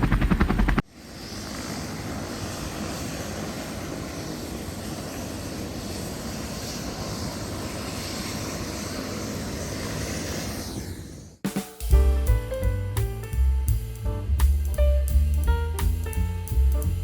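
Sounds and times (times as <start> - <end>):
helicopter engine and rotor: 0.0 - 11.4.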